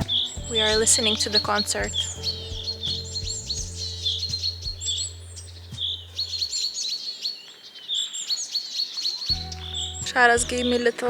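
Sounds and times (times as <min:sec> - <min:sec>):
low steady hum: 0:00.0 - 0:06.5, 0:09.3 - 0:11.0
songbirds chirping and trilling: 0:00.0 - 0:11.0.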